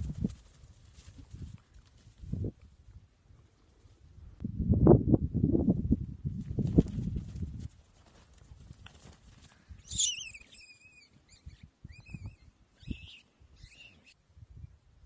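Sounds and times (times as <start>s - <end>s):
bird warbling chirps: 9.8s - 14.2s.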